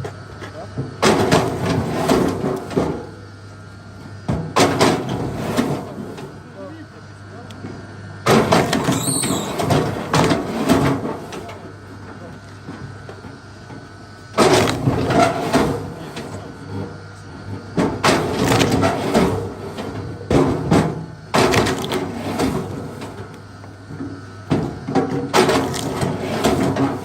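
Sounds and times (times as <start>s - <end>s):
wood splitting and splintering: 1.0s - 2.9s, 8.3s - 11.6s, 14.3s - 16.6s, 17.8s - 23.4s, 24.5s - 27.0s.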